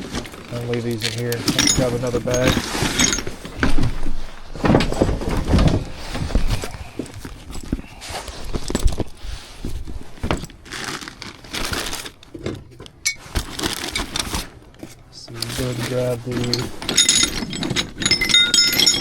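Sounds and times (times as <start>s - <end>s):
bags rustling: 0.0s - 19.0s
tools knocking and clanking: 1.0s - 6.4s, 15.3s - 19.0s.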